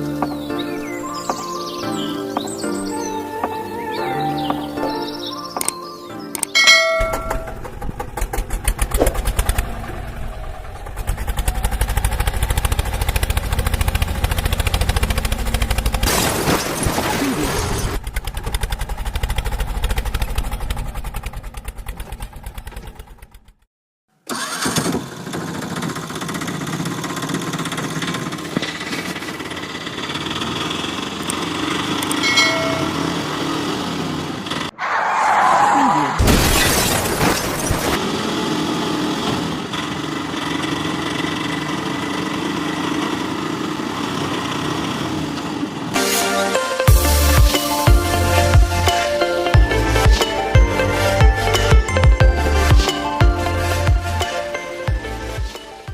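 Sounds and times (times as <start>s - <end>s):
engine chugging: 6.7s - 16.3s, 17.6s - 23.7s, 24.3s - 34.7s, 38.0s - 46.0s, 46.9s - 55.9s.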